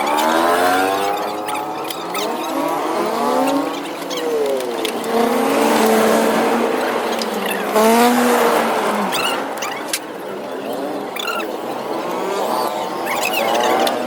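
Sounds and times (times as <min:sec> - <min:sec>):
motor revving: 0:00.0 - 0:09.6.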